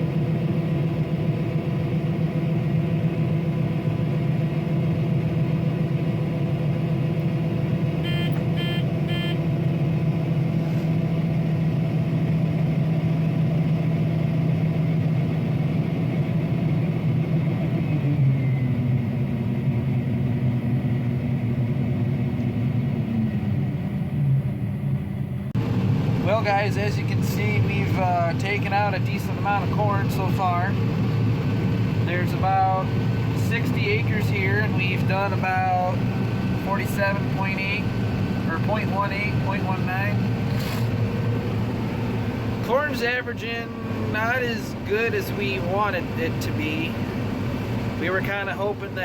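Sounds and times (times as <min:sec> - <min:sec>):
combine harvester engine drone: 0:00.0 - 0:49.0
short beeps: 0:08.0 - 0:09.4.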